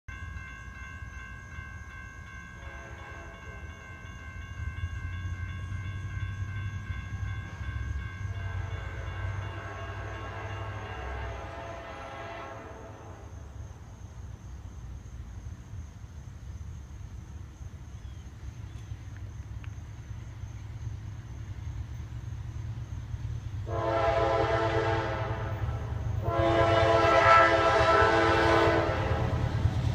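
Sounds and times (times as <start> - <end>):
rumble of rolling train: 0.1 - 29.9
locomotive air horn blast: 2.7 - 3.5, 8.4 - 13.3, 23.6 - 29.5.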